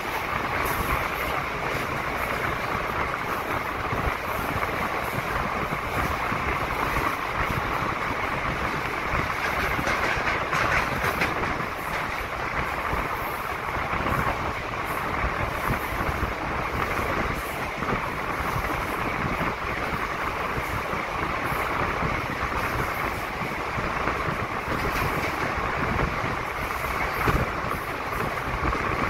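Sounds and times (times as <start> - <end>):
rushing air: 0.0 - 29.0
train wheels on rail: 0.0 - 29.0.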